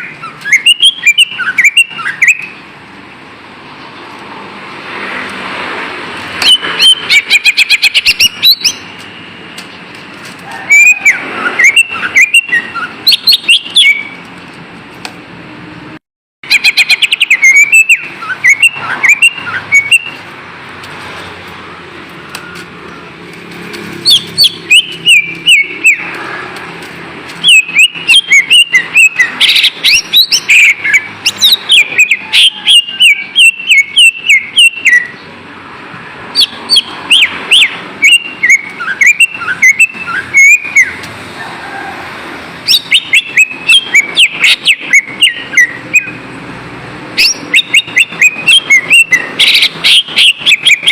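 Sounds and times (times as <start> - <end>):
bird singing sharp whistles: 0.0 - 2.5, 10.7 - 14.2, 24.1 - 26.0, 27.4 - 35.2, 36.4 - 41.0, 47.2 - 50.9.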